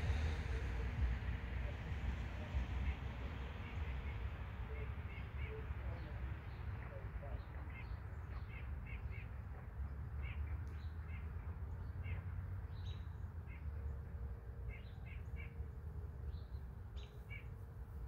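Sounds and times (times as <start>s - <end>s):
low steady rumble: 0.0s - 18.0s
faint steady tone: 12.3s - 18.0s.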